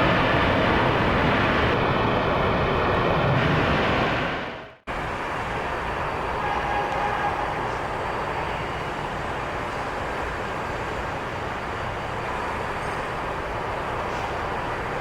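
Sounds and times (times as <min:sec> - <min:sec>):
jet engines roaring: 0:00.0 - 0:09.6
faint jet engine whine: 0:00.0 - 0:15.0.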